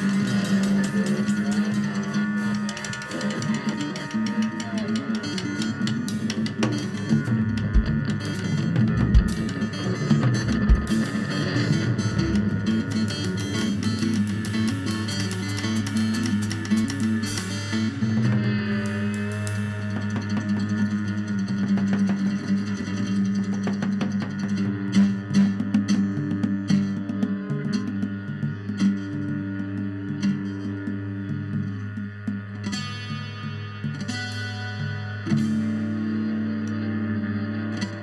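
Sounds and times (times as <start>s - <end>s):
drum kit: 0.0s - 21.1s
electric and acoustic guitars: 0.0s - 38.0s.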